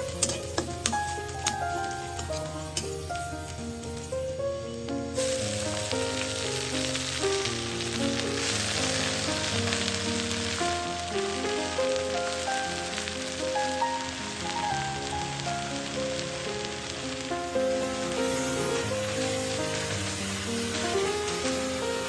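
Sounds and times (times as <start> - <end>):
background music plucked melody: 0.0 - 22.0
food sizzling in oil: 0.0 - 22.0.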